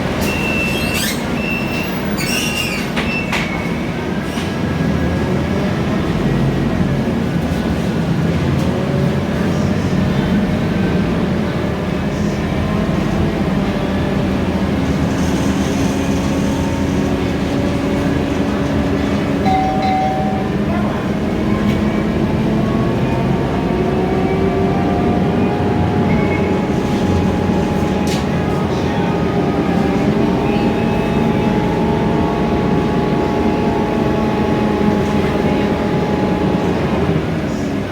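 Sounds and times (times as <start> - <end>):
bus engine running: 0.0 - 37.9
road rumble: 0.0 - 37.9
drivetrain whine: 16.0 - 37.6.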